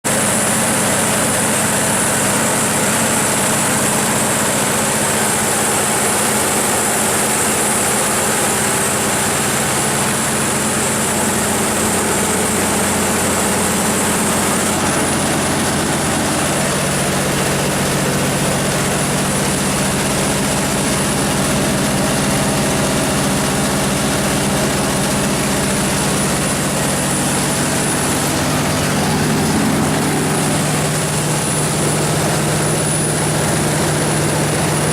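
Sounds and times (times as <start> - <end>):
diesel generator engine running: 0.0 - 34.9.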